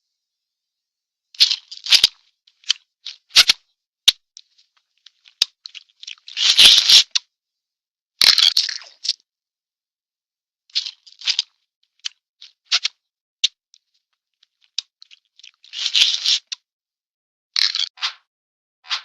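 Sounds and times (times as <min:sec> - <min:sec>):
scratchy crunching noises: 0:04.5 - 0:07.2, 0:10.7 - 0:13.0, 0:14.4 - 0:16.6.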